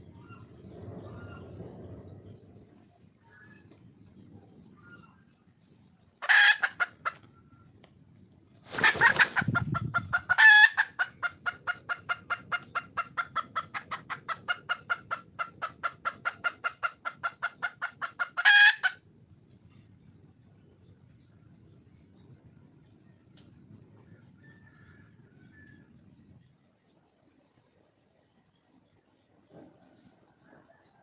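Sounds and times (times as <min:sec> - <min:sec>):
hen clucking: 0:06.2 - 0:07.4, 0:08.7 - 0:19.0.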